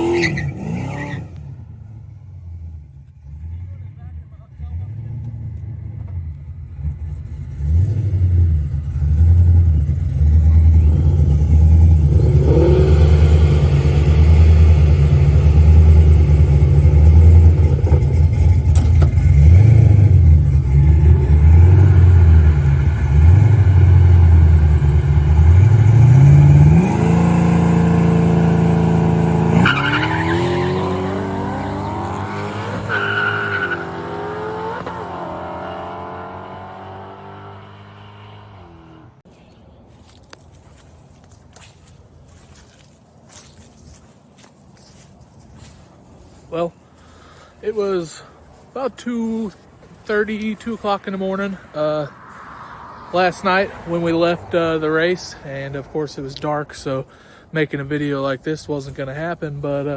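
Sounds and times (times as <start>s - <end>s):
car accelerating hard: 0.0s - 1.6s, 2.6s - 39.2s
drag car engine revving: 2.4s - 39.2s.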